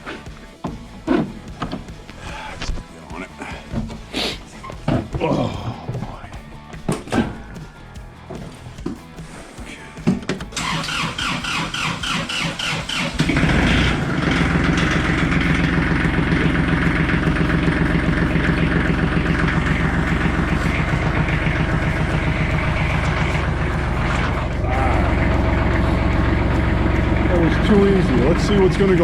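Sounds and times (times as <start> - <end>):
diesel engine idling: 9.7 - 29.0
starter motor cranking: 10.0 - 29.0.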